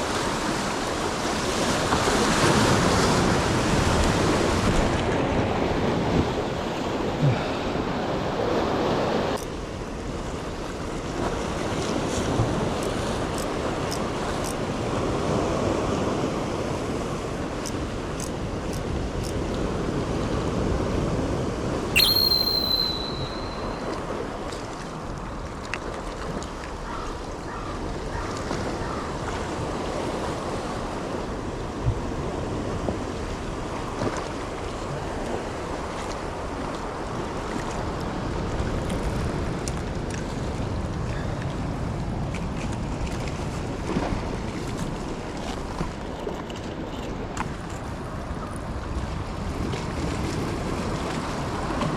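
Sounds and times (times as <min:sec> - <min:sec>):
waves surging and breaking: 0:00.0 - 0:12.8
sharp high-pitched tone: 0:22.0 - 0:24.0.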